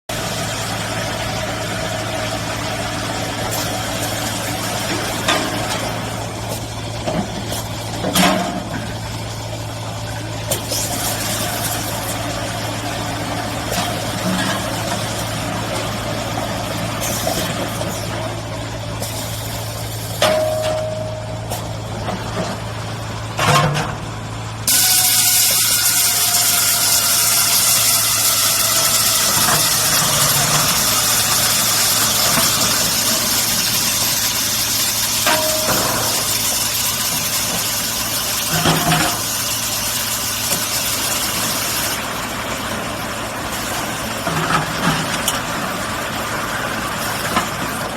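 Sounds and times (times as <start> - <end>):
machine clanks: 20.0 - 24.0, 24.7 - 39.4
loud steady hiss: 24.6 - 44.2.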